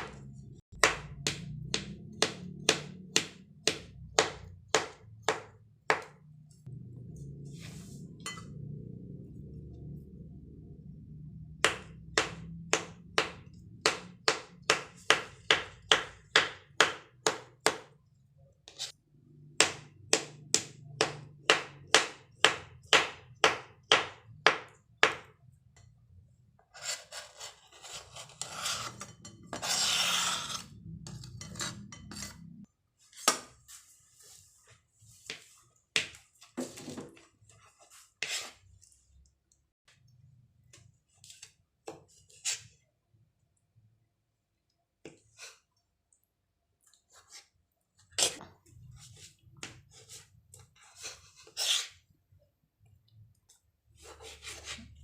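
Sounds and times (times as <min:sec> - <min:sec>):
knife chopping on cutting board: 0:00.0 - 0:06.2, 0:11.6 - 0:17.9, 0:19.6 - 0:25.3.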